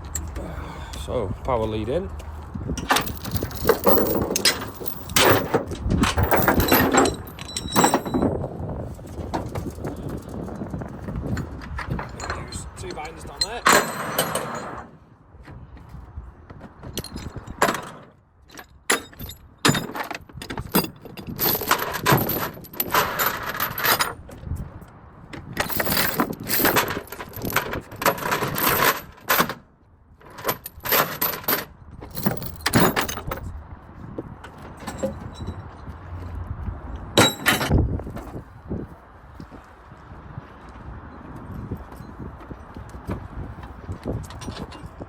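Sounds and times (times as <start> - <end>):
metal chains clanking and rattling: 0.0 - 0.4, 2.8 - 14.9, 16.9 - 24.3, 25.5 - 29.6, 30.2 - 33.5, 34.6 - 36.0, 37.0 - 37.7, 44.2 - 45.0.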